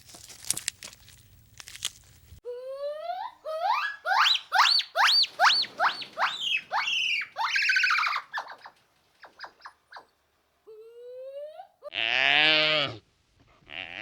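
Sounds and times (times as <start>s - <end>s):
animal calling: 2.5s - 13.0s.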